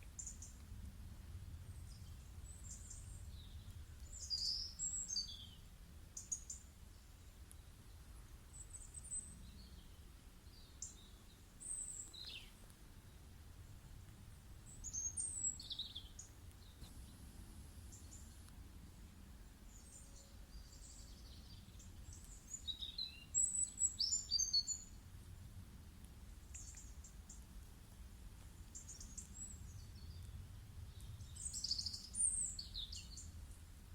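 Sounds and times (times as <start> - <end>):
low steady rumble: 0.0 - 4.3, 9.2 - 22.6.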